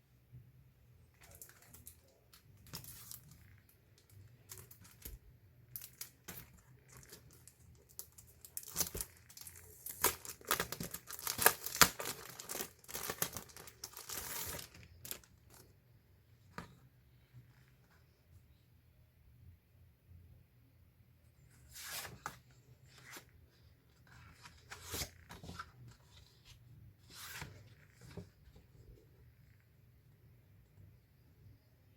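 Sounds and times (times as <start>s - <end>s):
packaging torn and crinkled: 8.0s - 15.3s.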